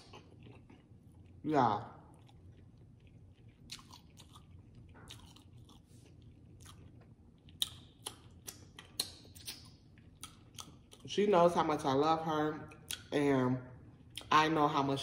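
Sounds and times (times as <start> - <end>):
person chewing food: 0.0 - 1.4, 2.0 - 11.1
wet mouth clicks: 7.6 - 11.1.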